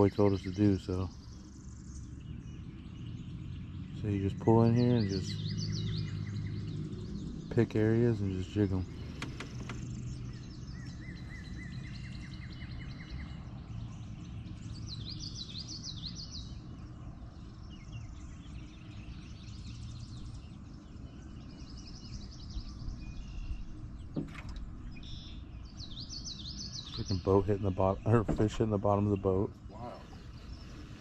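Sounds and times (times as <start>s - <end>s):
low outdoor rumble: 0.0s - 31.0s
songbirds trilling and chirping: 0.0s - 31.0s
knock against boat: 24.1s - 24.6s, 28.2s - 28.5s.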